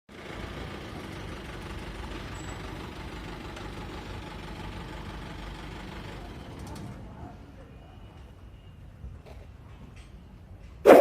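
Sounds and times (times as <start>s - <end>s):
tractor diesel engine running: 0.1s - 6.8s.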